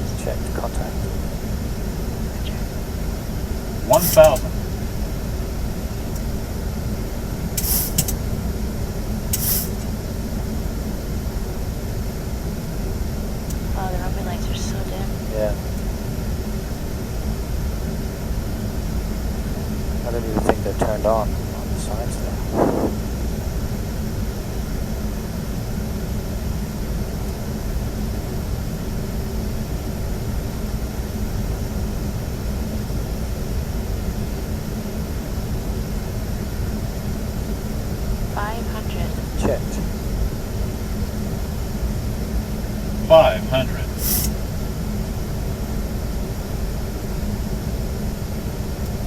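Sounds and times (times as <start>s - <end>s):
low hum: 0.0s - 25.8s, 36.1s - 49.0s
cockpit airflow and engine noise: 0.0s - 49.0s
short high hisses: 3.9s - 4.4s, 7.6s - 8.1s, 9.4s - 9.8s, 43.9s - 44.4s
airflow rushing: 20.1s - 23.2s.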